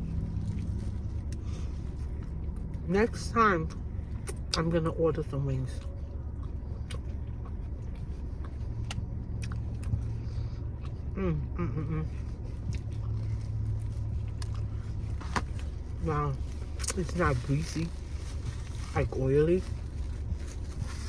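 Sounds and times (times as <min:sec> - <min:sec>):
car idling rumble: 0:00.0 - 0:21.0
person humming: 0:11.1 - 0:12.2.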